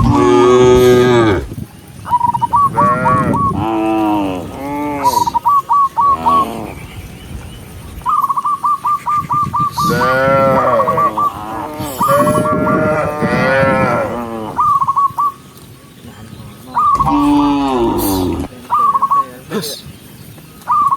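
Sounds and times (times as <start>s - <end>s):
cattle mooing: 0.0s - 1.5s, 9.8s - 14.6s, 17.0s - 18.5s.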